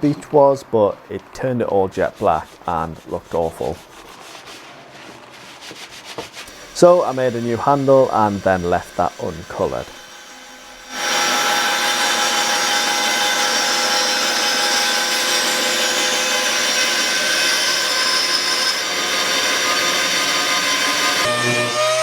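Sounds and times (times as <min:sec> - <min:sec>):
power tool cutting wood: 0:06.4 - 0:22.0.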